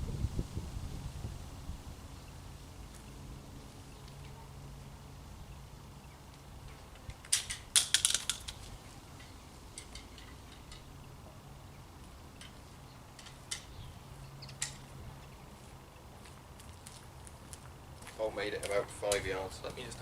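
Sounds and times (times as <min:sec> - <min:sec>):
rattling clicks and clatters: 0:07.0 - 0:10.9.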